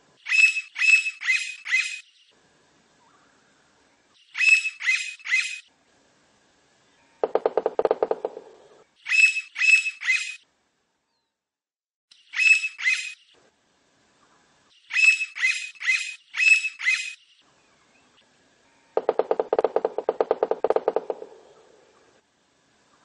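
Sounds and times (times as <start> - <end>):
woodpecker harsh high calls: 0.2 - 2.1, 4.3 - 5.7, 7.2 - 10.4, 12.3 - 13.2, 14.9 - 17.2, 18.9 - 22.1
lower rapidly pulsed bird call: 0.2 - 2.3, 4.2 - 5.7, 9.0 - 10.4, 12.1 - 13.4, 14.8 - 18.2.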